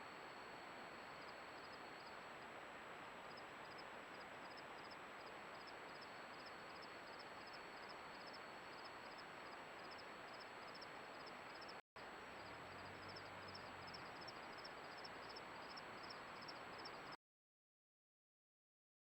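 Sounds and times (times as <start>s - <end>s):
thin high whine: 0.0s - 11.8s
insects chirping: 0.1s - 17.2s.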